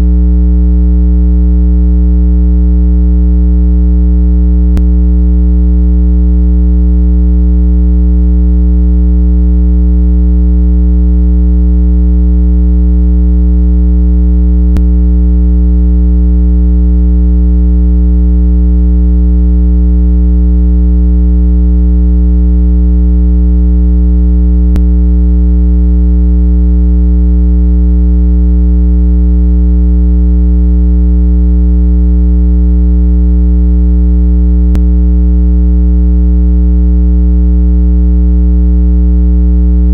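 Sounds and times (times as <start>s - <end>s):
low buzzy electronic test tone: 0.0s - 18.7s, 23.5s - 24.9s, 34.7s - 35.0s.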